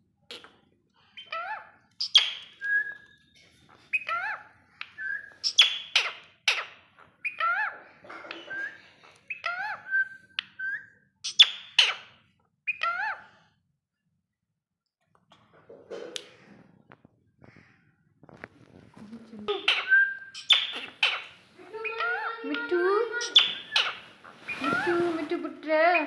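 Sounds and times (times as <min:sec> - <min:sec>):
parrot chirping and squawking: 0:00.3 - 0:03.0, 0:03.7 - 0:13.4, 0:19.5 - 0:25.1.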